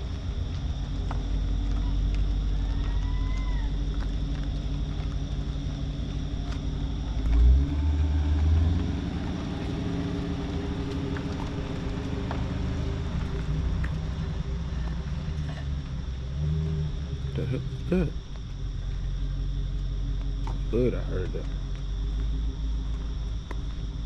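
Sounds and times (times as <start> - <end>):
car engine droning: 0.0 - 24.0.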